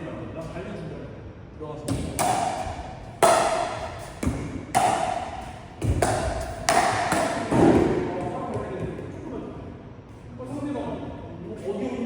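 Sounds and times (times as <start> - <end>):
paddles striking plastic ball: 1.9 - 9.0
ball bouncing: 1.9 - 9.2.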